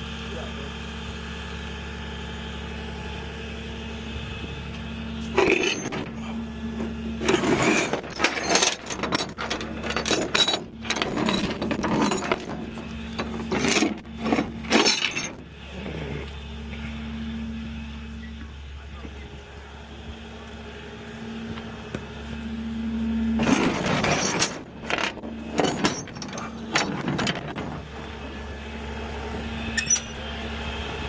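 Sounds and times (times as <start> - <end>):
vehicle engine idling: 0.0 - 7.3, 12.3 - 14.7, 15.4 - 23.4, 27.4 - 31.0.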